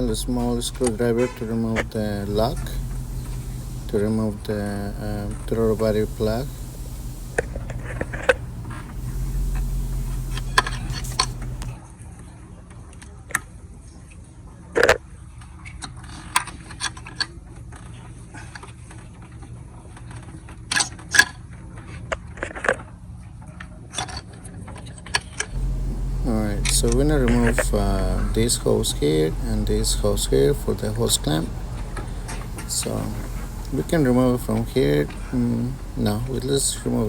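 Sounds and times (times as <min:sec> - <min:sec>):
steady low hum: 0:00.0 - 0:11.8, 0:25.5 - 0:37.0.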